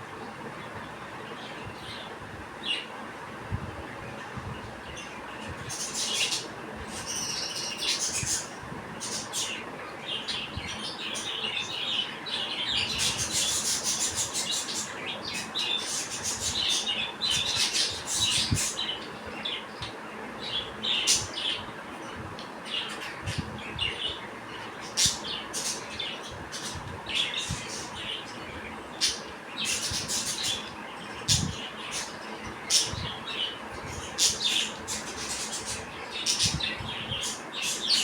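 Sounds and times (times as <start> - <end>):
budgerigars chirping and squawking: 5.7 - 19.6, 24.8 - 38.0.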